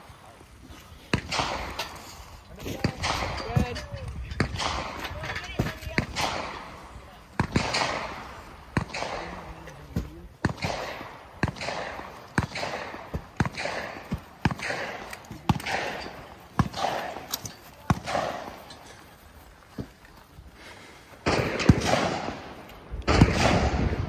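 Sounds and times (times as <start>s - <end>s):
gunshots with short echo: 7.4s - 9.5s, 10.4s - 18.6s, 21.2s - 24.0s.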